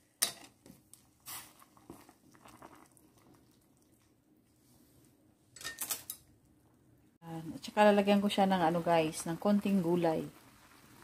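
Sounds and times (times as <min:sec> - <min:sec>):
stirring noodles in broth: 0:00.2 - 0:04.2.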